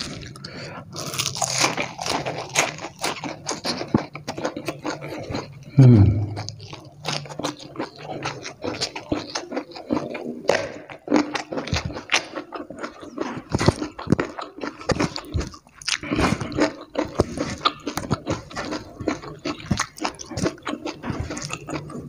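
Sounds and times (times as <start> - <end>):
chewing and crunching: 0.0 - 22.0
wet mouth sounds: 4.6 - 22.0
falling-pitched vocal sound: 5.8 - 6.5.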